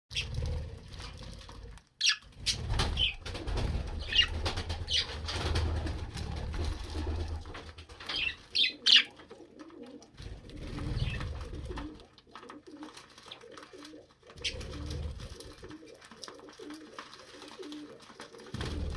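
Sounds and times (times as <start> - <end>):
budgerigars chirping: 2.0 - 3.2, 4.0 - 4.3, 4.9 - 5.1, 8.1 - 9.1.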